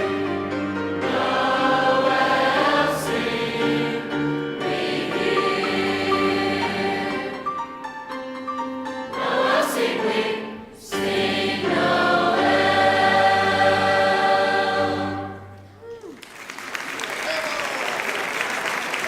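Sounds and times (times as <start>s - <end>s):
choir singing: 0.0s - 7.8s, 8.9s - 15.7s.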